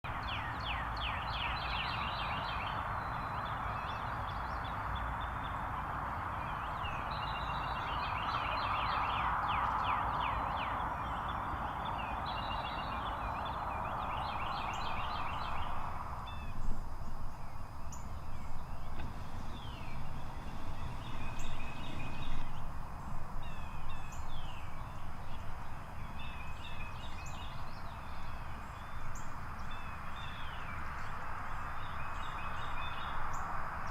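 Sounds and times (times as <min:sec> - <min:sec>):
steady hiss: 0:12.1 - 0:33.9.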